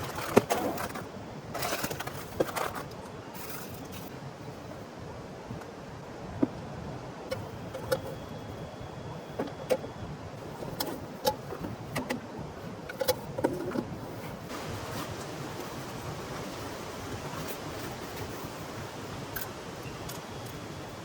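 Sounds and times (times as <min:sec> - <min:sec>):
heavy rain hissing: 0:14.5 - 0:21.0.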